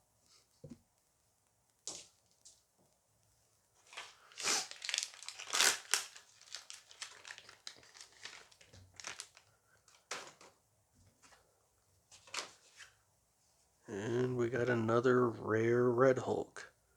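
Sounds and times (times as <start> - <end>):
foil wrapper tearing and crinkling: 3.9 - 9.5.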